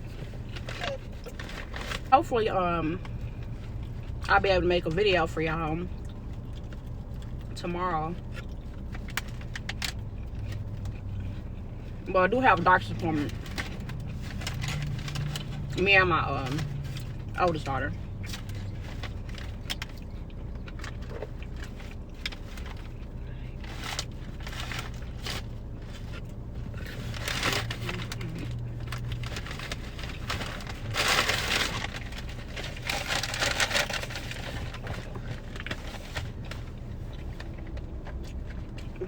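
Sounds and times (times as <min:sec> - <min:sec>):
chewing and crunching food: 0:00.0 - 0:39.0
steady low hum: 0:00.0 - 0:39.0
paper packaging crinkling: 0:13.2 - 0:15.8, 0:18.1 - 0:39.0.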